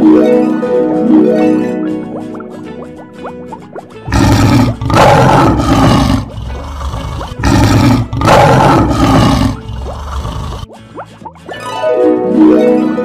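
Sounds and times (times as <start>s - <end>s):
lion roaring: 4.1s - 10.7s.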